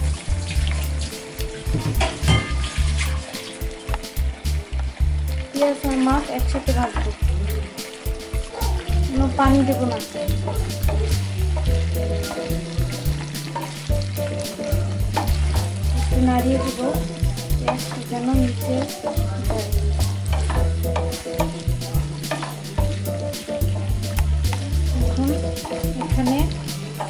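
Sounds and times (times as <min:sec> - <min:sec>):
fish and onions sizzling in oil: 0:00.0 - 0:27.0
wooden spatula scraping a pan: 0:01.6 - 0:03.9, 0:09.3 - 0:27.0
low rumble: 0:04.3 - 0:05.3.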